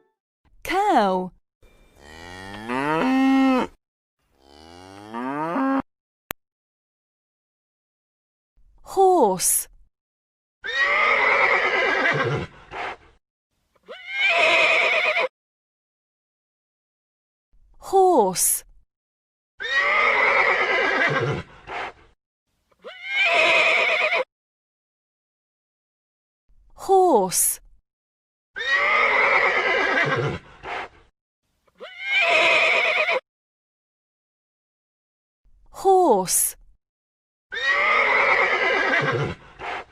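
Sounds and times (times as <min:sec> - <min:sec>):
horse neighing: 0:10.6 - 0:12.9, 0:13.9 - 0:15.3, 0:19.6 - 0:21.5, 0:22.8 - 0:24.3, 0:28.6 - 0:30.8, 0:31.8 - 0:33.2, 0:37.5 - 0:39.7.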